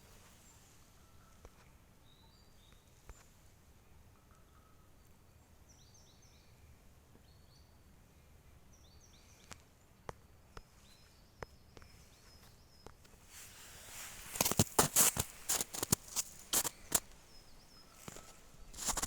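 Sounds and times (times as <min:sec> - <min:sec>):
small birds calling: 0:10.9 - 0:19.0.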